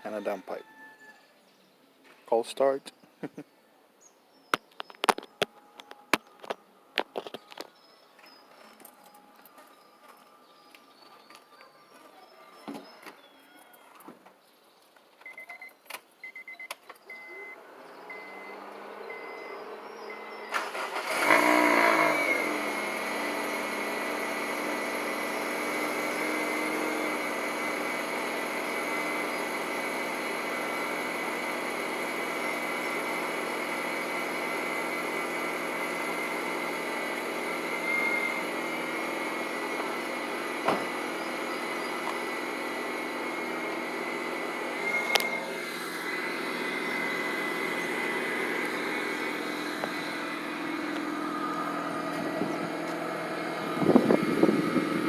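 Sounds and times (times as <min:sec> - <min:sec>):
car engine cranking and idling: 0:17.0 - 0:55.0.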